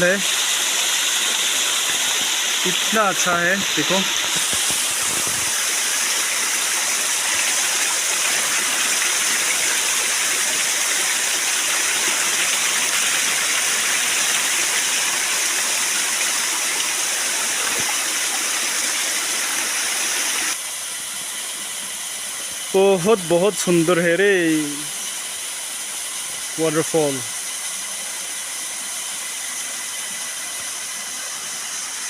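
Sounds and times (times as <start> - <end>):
waterfall rushing: 0.0 - 20.6.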